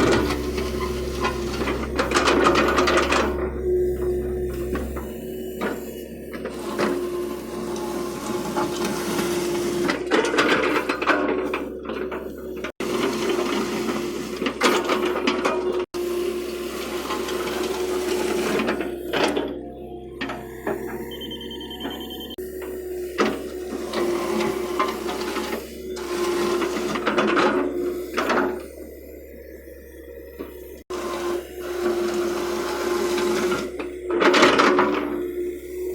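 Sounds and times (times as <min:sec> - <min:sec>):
clanks and rattles: 0:00.0 - 0:07.0
steady whine: 0:00.0 - 0:09.0, 0:16.0 - 0:32.2
excavator engine and hydraulics humming: 0:00.0 - 0:35.9.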